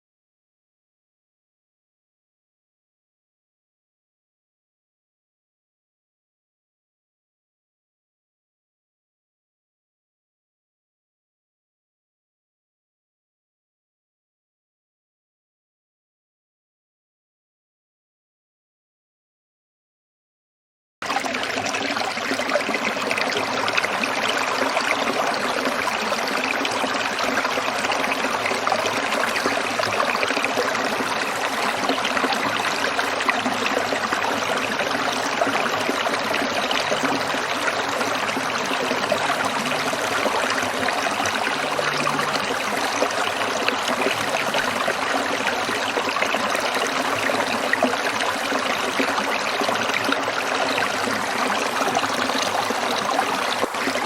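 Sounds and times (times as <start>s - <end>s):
stream water trickling: 21.0s - 54.0s.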